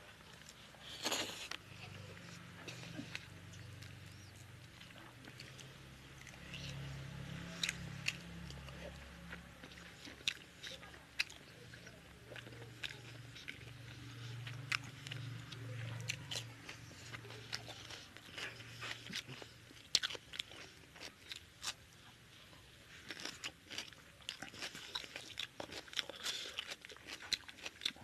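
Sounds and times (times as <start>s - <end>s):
low steady hum: 0.0s - 28.0s
wet chewing and mouth clicks: 0.2s - 21.9s, 22.9s - 28.0s
crunchy bites: 0.4s - 1.6s.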